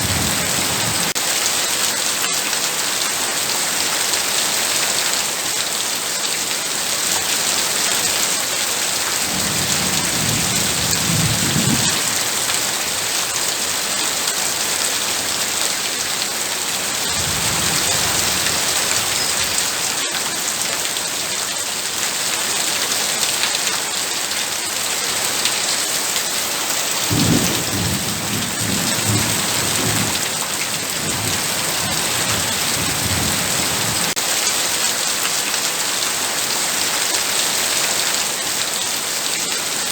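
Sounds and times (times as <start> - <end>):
heavy rain: 0.0 - 39.9
low thunder rumbling: 9.3 - 12.4, 27.1 - 34.2.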